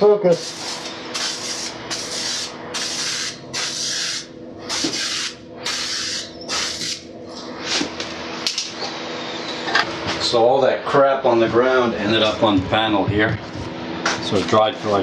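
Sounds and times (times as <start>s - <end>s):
spray can hissing: 0.4s - 7.0s.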